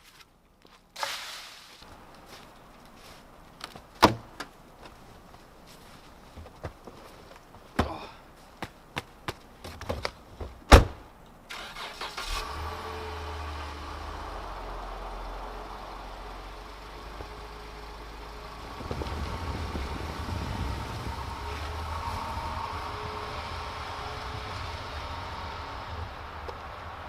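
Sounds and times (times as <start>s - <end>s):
door slamming: 10.7s - 11.0s
car engine starting and idling: 10.7s - 27.0s.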